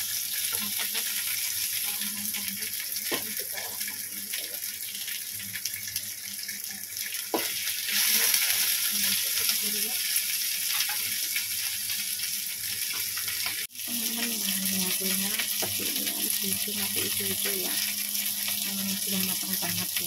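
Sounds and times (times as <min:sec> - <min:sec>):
chillies sizzling in oil: 0:00.0 - 0:20.0.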